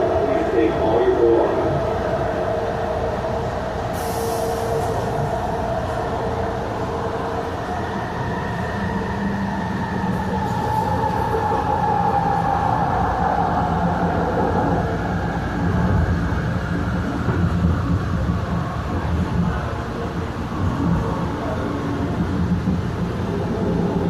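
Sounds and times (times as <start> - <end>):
drawn-out train whine: 0.0 - 24.0
train wheels rumbling on rail: 0.0 - 24.0.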